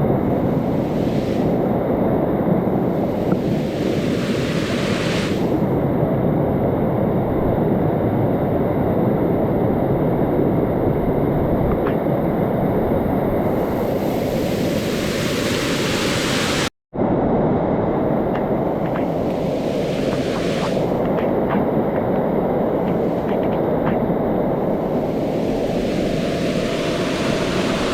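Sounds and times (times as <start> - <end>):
water roaring down steps: 18.0 - 27.9.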